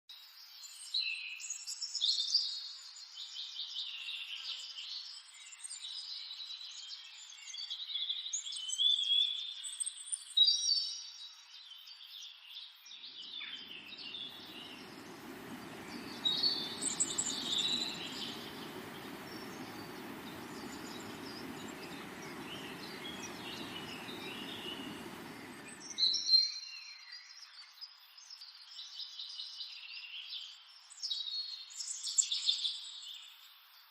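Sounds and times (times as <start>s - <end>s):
birds chirping and trilling: 13.6s - 26.0s
steady rushing noise: 13.7s - 26.0s.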